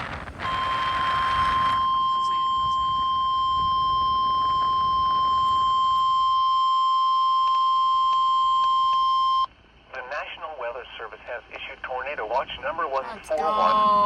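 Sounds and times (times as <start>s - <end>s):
weather radio alert beep: 0.0s - 9.5s, 12.8s - 14.0s.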